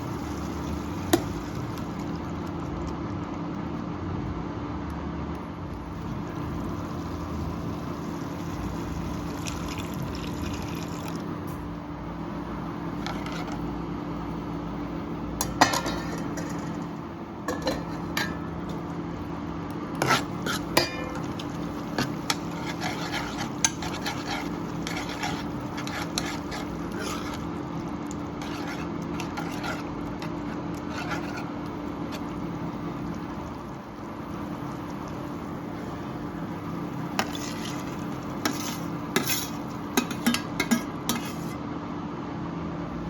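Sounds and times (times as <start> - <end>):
steady low hum: 0.0 - 43.0
metal spoon scraping a pan: 13.0 - 13.6, 19.9 - 32.4, 37.2 - 41.6.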